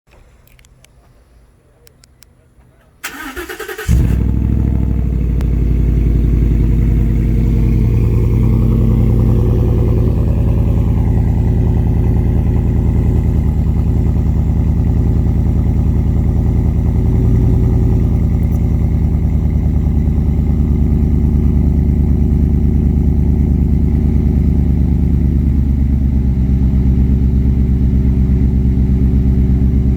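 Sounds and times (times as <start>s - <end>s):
engine fast cold idle: 3.0s - 29.9s
starter cranking: 3.1s - 4.2s.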